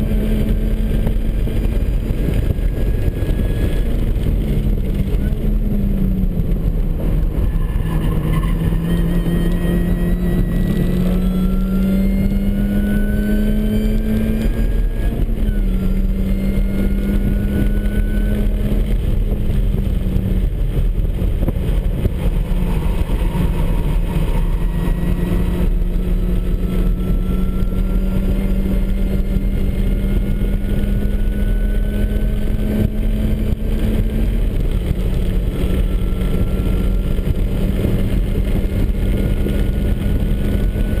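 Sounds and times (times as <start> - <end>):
car engine pulling hard: 0.0 - 41.0
high supercharger whine: 0.0 - 41.0
tyre and wind noise: 0.0 - 41.0.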